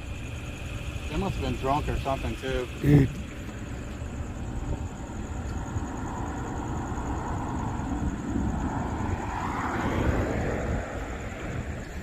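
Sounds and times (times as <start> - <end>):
low traffic rumble: 0.0 - 12.0
vehicle passing by: 6.0 - 11.9.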